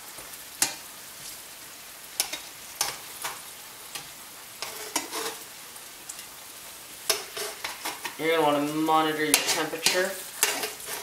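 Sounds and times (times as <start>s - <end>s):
potatoes sizzling in oil: 0.0s - 11.0s
metal tongs scraping a pan: 2.2s - 5.5s, 7.0s - 11.0s.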